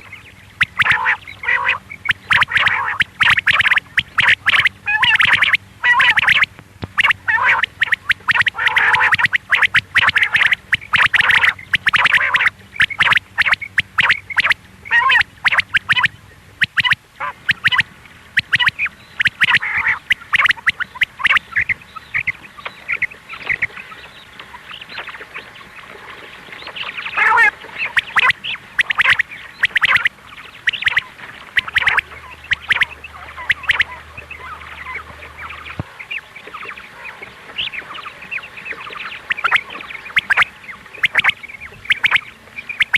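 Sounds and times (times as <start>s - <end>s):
quail calling: 0.0s - 25.7s, 26.5s - 42.9s.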